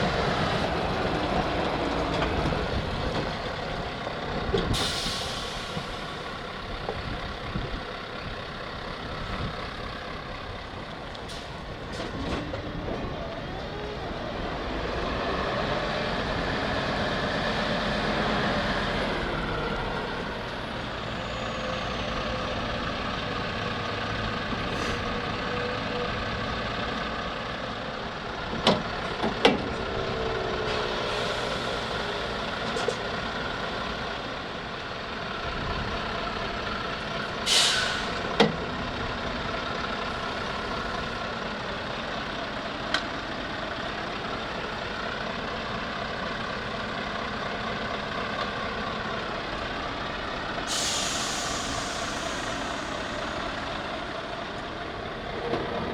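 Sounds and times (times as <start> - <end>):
diesel truck engine running: 0.0 - 55.9
air brake hiss: 4.7 - 6.1, 24.7 - 25.1, 30.7 - 32.0, 37.4 - 38.3, 50.6 - 53.7.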